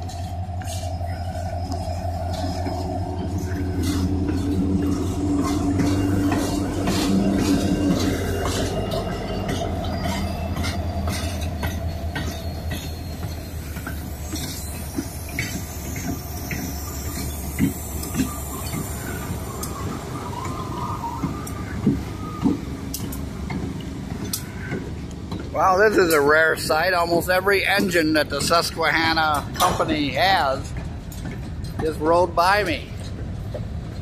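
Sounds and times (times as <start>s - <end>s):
locomotive engines droning: 0.0s - 34.0s
train wheels clicking over rail joints: 0.0s - 34.0s.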